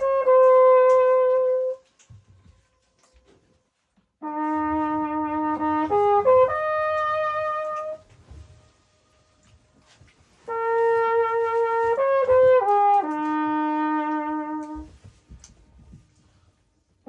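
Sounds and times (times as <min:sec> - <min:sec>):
trumpet echo off cliffs: 0:00.0 - 0:02.0, 0:04.2 - 0:08.8, 0:09.4 - 0:15.0
trumpet playing: 0:00.0 - 0:02.1, 0:04.2 - 0:15.5.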